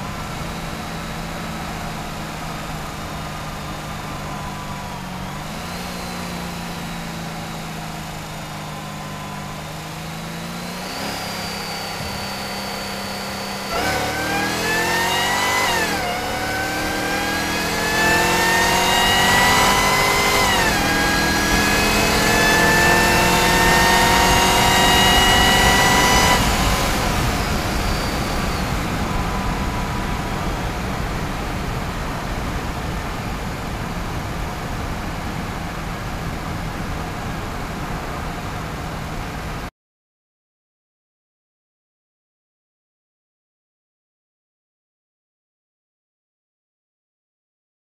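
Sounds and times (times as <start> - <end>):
car engine accelerating: 0.0 - 39.7
supercharger whine: 0.0 - 39.7.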